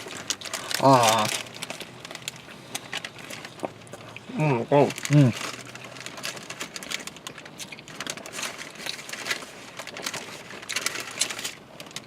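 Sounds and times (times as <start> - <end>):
food clicks and rustles: 0.0 - 12.0
person chewing food: 0.0 - 12.0.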